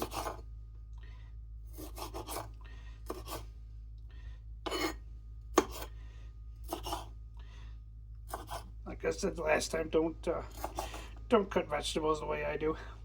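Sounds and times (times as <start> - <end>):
knife slicing peppers: 0.0 - 0.4, 1.7 - 3.5, 4.7 - 6.0, 6.6 - 7.1, 8.3 - 8.7, 10.4 - 11.1.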